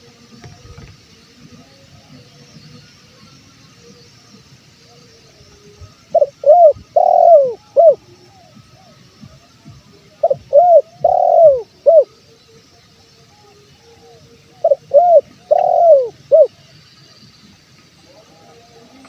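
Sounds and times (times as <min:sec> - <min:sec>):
dove cooing: 0:06.1 - 0:09.0, 0:10.2 - 0:12.1, 0:13.9 - 0:16.5.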